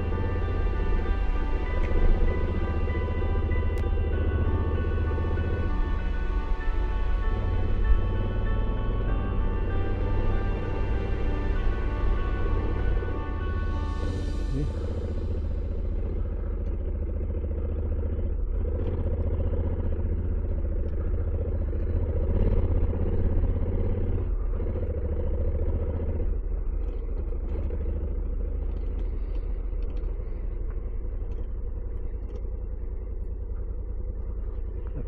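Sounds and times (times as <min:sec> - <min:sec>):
motorcycle engine running: 0:00.0 - 0:35.0
light ticks: 0:26.8 - 0:32.8.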